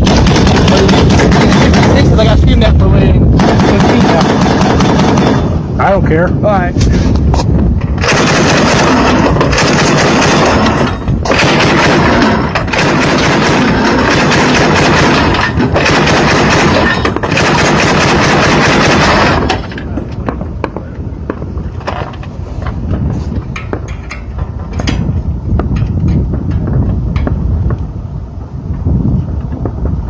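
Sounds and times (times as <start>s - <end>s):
machine gun firing full auto: 0.0s - 2.2s, 3.4s - 5.5s, 8.0s - 19.6s.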